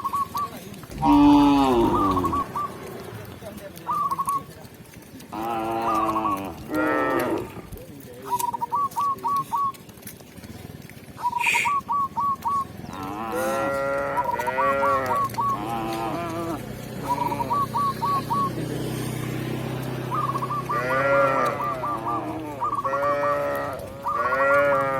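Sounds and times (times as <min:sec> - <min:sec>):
bird call: 0:00.0 - 0:03.0, 0:03.8 - 0:04.5, 0:08.2 - 0:09.9, 0:11.2 - 0:13.5, 0:14.2 - 0:15.7, 0:17.0 - 0:18.6, 0:20.1 - 0:23.1, 0:24.0 - 0:24.5
cows mooing: 0:00.9 - 0:03.2, 0:05.3 - 0:07.8, 0:12.8 - 0:17.8, 0:18.9 - 0:24.9.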